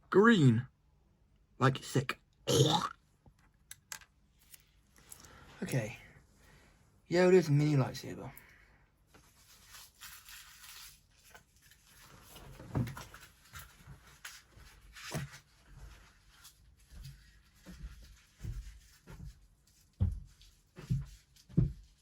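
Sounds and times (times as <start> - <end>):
plastic packaging rustling: 9.1 - 17.6.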